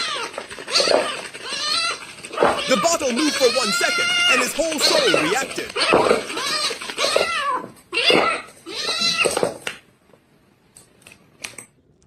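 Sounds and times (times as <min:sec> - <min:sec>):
cat meowing: 0:00.0 - 0:09.4.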